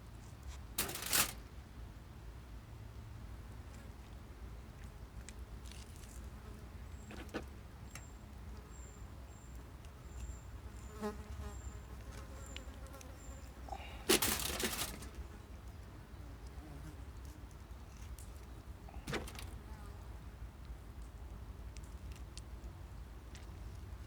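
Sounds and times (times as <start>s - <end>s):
loud rustling burst: 0.8s - 1.4s, 14.0s - 15.2s.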